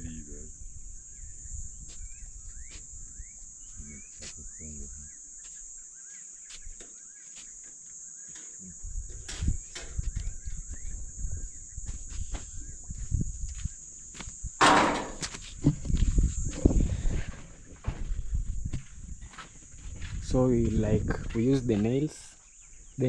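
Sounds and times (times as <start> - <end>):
bird chirping: 0.0 - 8.8, 9.5 - 14.0, 21.4 - 23.0
high-pitched insect chorus: 0.0 - 23.0
footsteps and handling noise: 5.4 - 10.9, 11.8 - 22.1.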